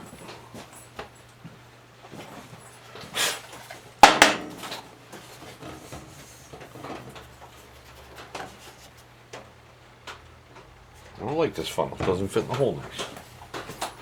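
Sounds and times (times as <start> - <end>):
hard objects rummaged and knocking: 2.1 - 14.0.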